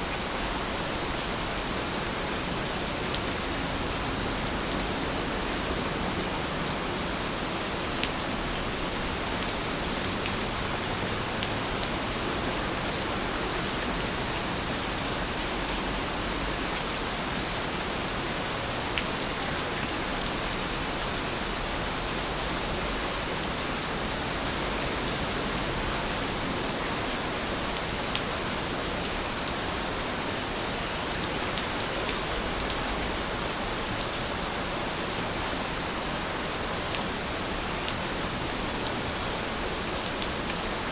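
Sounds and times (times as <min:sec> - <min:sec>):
steady rain hiss: 0:00.0 - 0:40.9
raindrops striking a surface: 0:00.9 - 0:17.0.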